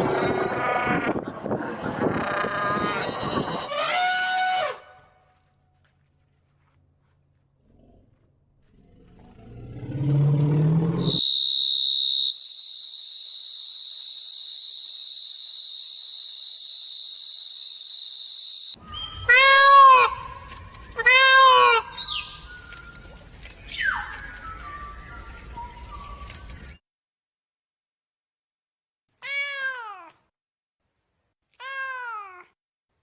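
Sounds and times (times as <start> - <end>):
high whistle-like tone: 11.0 - 19.3
cat meowing: 29.2 - 30.2, 31.6 - 32.6.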